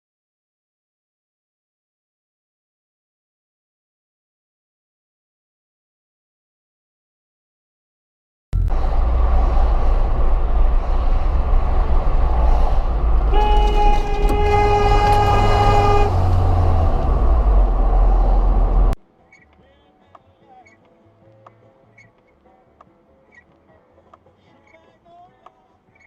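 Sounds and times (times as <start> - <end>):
horn blast: 8.6 - 19.0
vehicle engine rumbling: 8.6 - 19.0.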